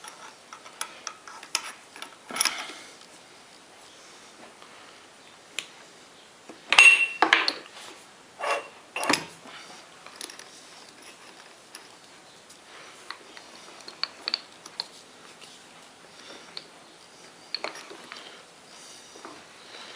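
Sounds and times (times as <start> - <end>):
light metal clinks: 6.7 - 7.6
metallic clanks: 6.7 - 7.6.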